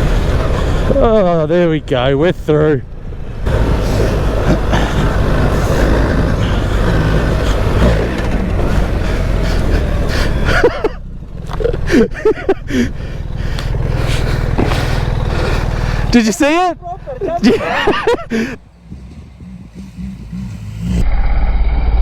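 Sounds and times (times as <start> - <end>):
motorcycle engine running: 0.0 - 2.1, 2.8 - 21.0
tyre noise: 3.4 - 21.0.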